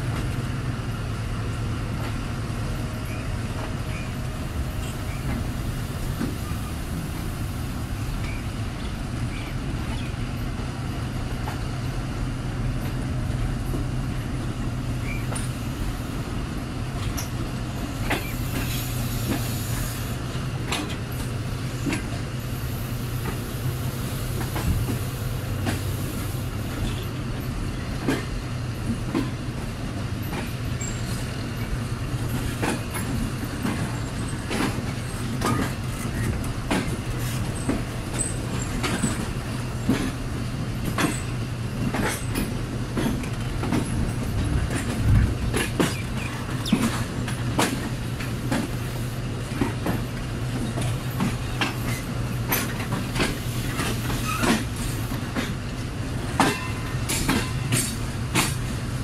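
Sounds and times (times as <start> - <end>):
train running drone: 0.0 - 59.0
wheels clicking over rail joints: 24.3 - 59.0.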